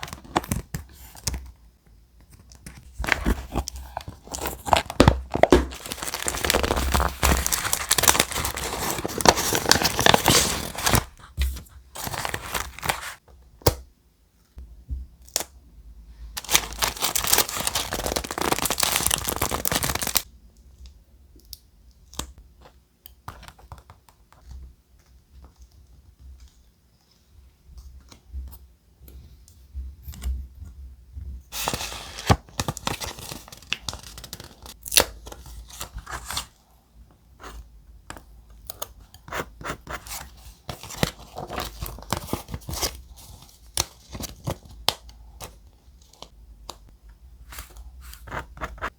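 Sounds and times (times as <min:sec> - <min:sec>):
paper tearing and crinkling: 0:04.2 - 0:11.2, 0:16.4 - 0:20.2.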